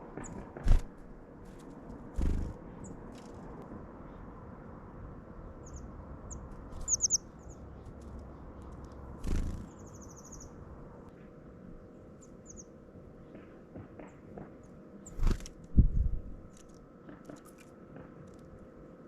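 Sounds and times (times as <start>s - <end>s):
songbirds chirping: 5.3s - 15.3s.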